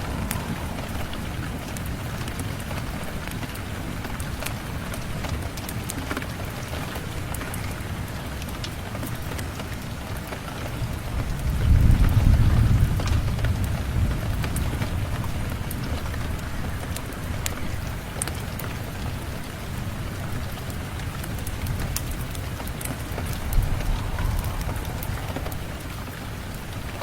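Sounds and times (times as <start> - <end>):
low roll of thunder: 0.0 - 5.5, 10.8 - 18.1, 20.3 - 27.0
water dripping: 0.0 - 6.0, 20.6 - 27.0
steady rain: 0.0 - 27.0.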